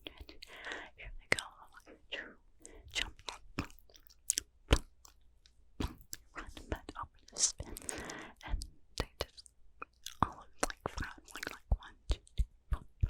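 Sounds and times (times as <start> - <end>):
person whispering: 0.0 - 3.8, 5.8 - 13.0
wet mouth clicks and smacks: 2.9 - 12.9.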